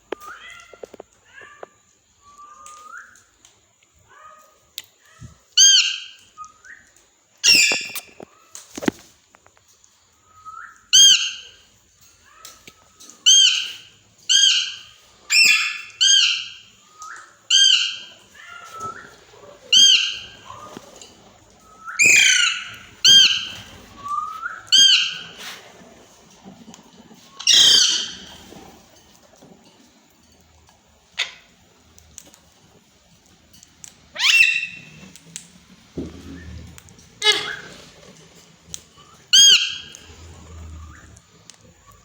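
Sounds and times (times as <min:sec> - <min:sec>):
parrot squawking: 0:17.5 - 0:18.6, 0:19.6 - 0:20.7, 0:21.9 - 0:23.6, 0:24.7 - 0:25.3, 0:27.4 - 0:28.3, 0:34.2 - 0:34.9, 0:37.2 - 0:37.9, 0:39.3 - 0:41.1.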